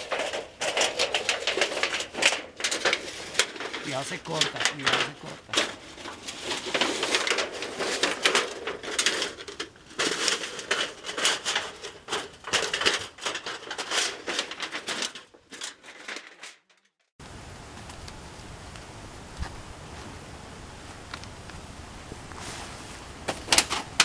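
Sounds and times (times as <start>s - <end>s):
crackling and crunching of handled material: 0.0s - 17.1s.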